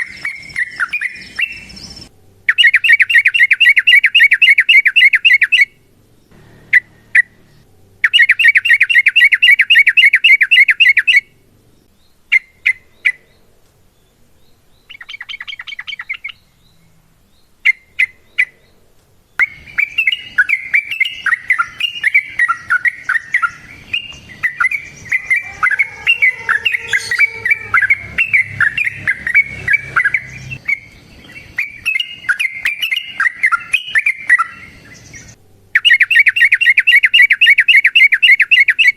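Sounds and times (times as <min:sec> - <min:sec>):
bird chattering trills: 0:00.0 - 0:05.7, 0:06.3 - 0:11.4, 0:19.3 - 0:38.9
bird chirps: 0:00.0 - 0:38.9.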